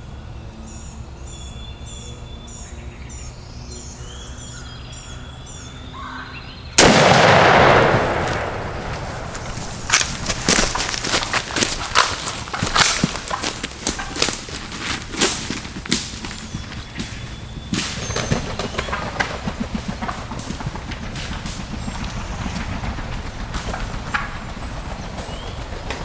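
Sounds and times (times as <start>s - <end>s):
shotgun blast with echo: 6.8s - 11.7s
rustles and thumps: 8.2s - 26.0s.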